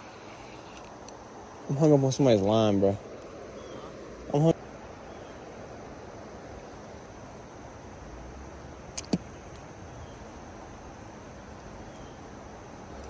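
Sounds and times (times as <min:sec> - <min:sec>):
sharp clicks: 0:09.0 - 0:09.7.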